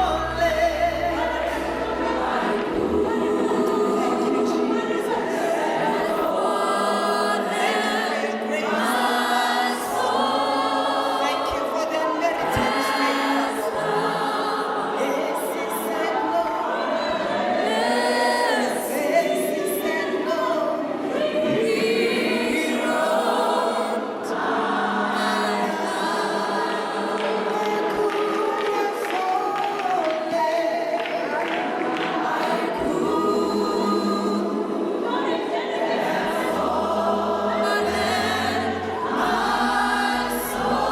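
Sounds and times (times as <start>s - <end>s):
choir singing gospel song: 0.0s - 40.9s.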